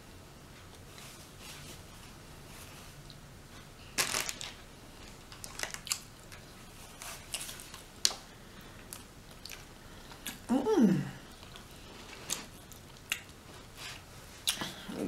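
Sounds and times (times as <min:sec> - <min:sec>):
meat tearing and rustling: 0:04.0 - 0:10.4.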